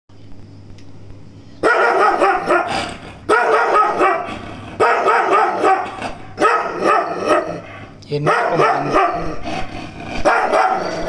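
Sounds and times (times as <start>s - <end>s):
low steady hum: 0.1s - 11.0s
dog barking: 1.6s - 7.6s, 8.2s - 9.4s, 10.2s - 11.0s.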